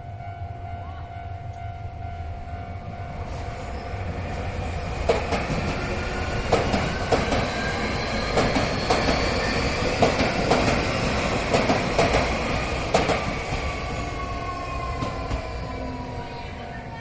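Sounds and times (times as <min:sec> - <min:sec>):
train wheels clacking over rail joints: 0:05.0 - 0:13.7.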